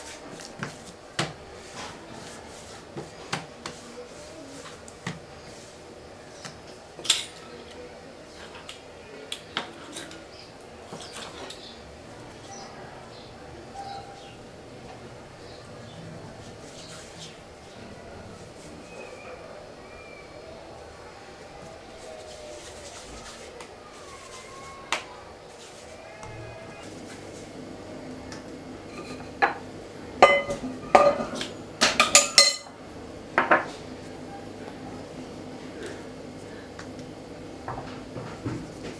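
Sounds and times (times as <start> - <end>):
kitchen utensils clinking: 7.0 - 7.8, 28.8 - 32.8.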